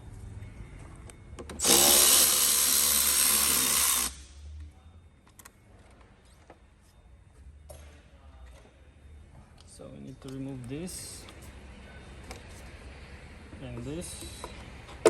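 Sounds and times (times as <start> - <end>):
power tool running: 1.6 - 4.3.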